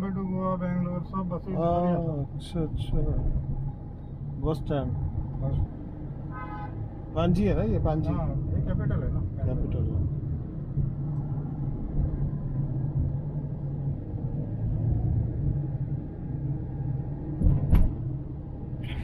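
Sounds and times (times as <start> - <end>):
car engine and road noise: 0.0 - 19.0
short thump: 17.4 - 18.0.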